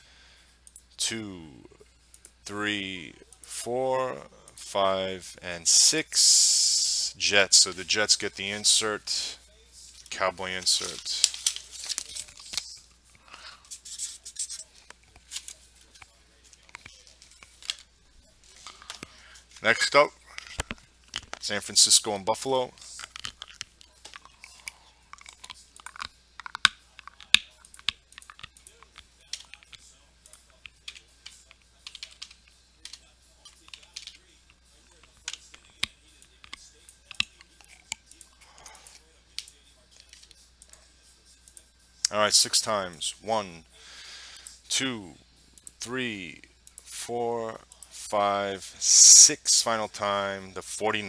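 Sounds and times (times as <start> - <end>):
trading cards clicking: 10.0 - 12.8, 13.7 - 22.0, 22.8 - 40.8
packaging rustling: 10.8 - 12.7
typing on keyboard: 30.9 - 34.2.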